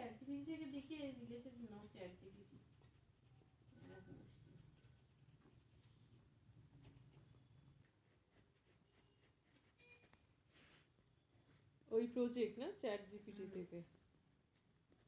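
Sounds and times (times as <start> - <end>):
drawing tool scratching on paper: 0.0 - 5.8.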